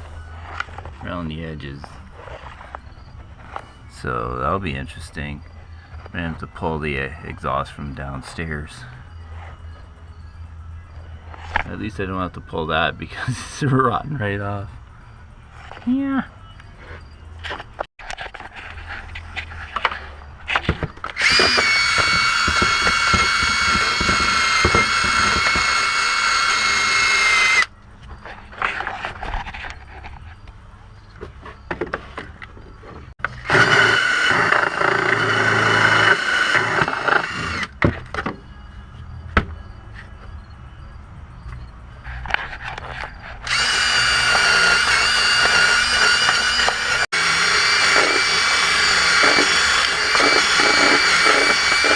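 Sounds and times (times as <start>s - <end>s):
power drill whining: 21.0s - 27.7s, 33.2s - 37.8s, 43.4s - 51.9s.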